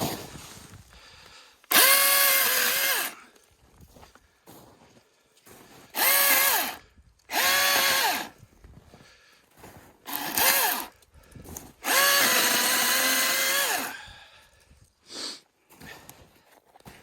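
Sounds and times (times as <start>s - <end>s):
electric chainsaw motor whine: 1.7s - 3.2s, 5.9s - 8.4s, 10.0s - 11.0s, 11.8s - 14.0s.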